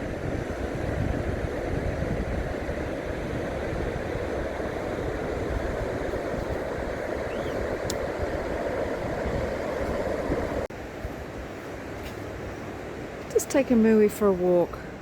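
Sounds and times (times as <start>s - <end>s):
surf washing onto beach: 0.0s - 10.7s
wind buffeting microphone: 0.0s - 11.6s.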